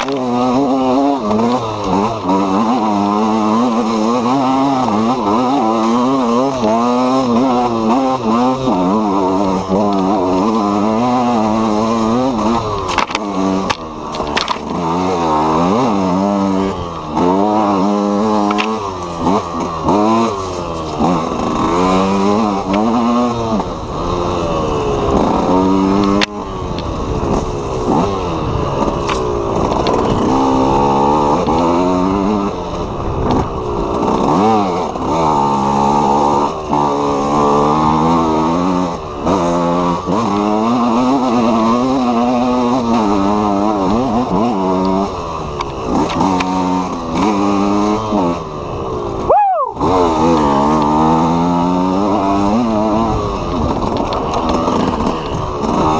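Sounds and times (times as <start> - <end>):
two-stroke engine revving: 0.0 - 55.9.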